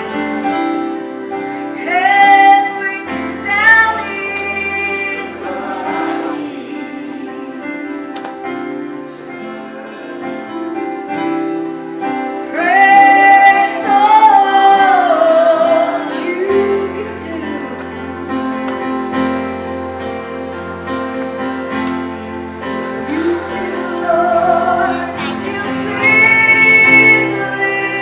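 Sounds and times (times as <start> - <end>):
sustained instrumental chords: 0.0 - 28.0
woman singing a long note: 23.0 - 28.0.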